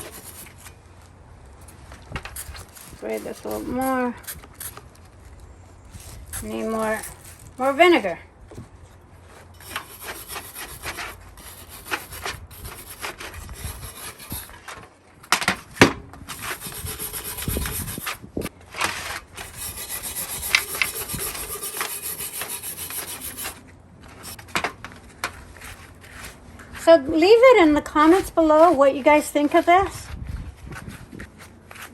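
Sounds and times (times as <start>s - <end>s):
wire brush scrubbing metal: 0.0s - 0.8s, 2.3s - 4.8s, 9.6s - 14.6s, 16.3s - 18.2s, 19.0s - 23.6s.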